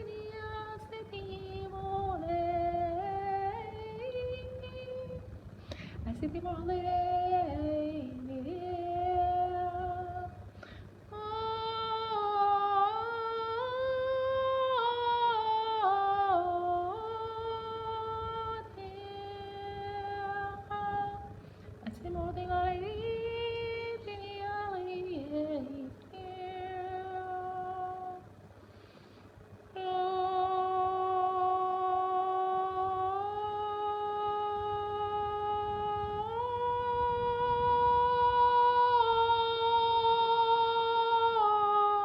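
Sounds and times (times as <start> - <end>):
woman humming long notes: 29.8 - 42.0.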